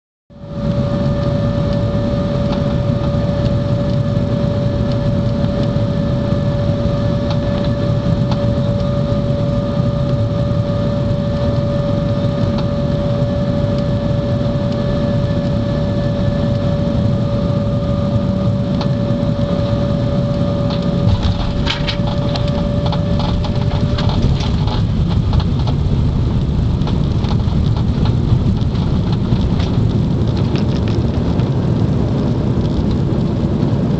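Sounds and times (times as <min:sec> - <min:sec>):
airplane cabin rush and hum: 0:00.3 - 0:33.9
wheels rattling on runway: 0:20.6 - 0:33.9.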